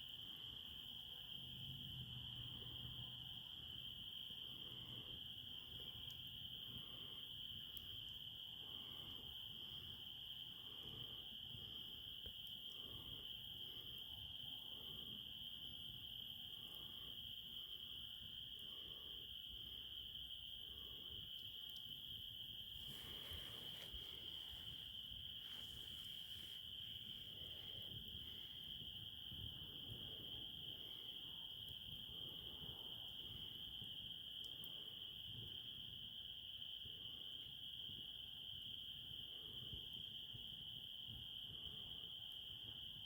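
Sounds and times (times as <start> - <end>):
crickets chirping: 0.0 - 43.0.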